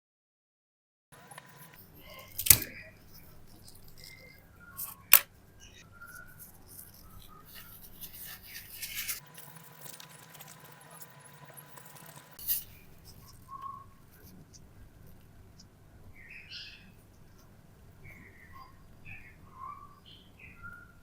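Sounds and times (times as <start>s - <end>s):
hand tools scraping a coin: 1.2s - 5.2s, 6.1s - 13.4s
sharp click: 2.4s - 2.7s, 4.8s - 5.3s.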